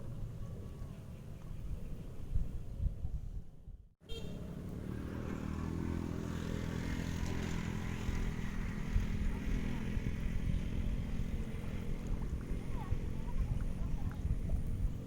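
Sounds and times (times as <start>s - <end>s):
small engine humming: 4.1s - 15.0s.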